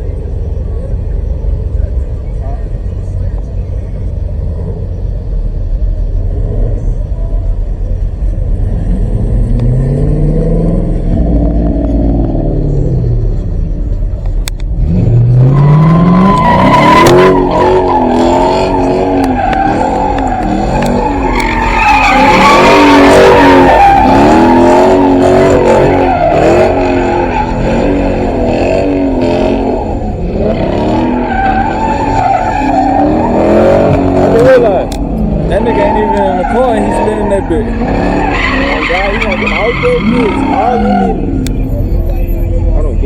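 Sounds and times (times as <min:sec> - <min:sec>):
car engine revving: 0:00.0 - 0:43.0
tyres squealing: 0:15.2 - 0:42.6.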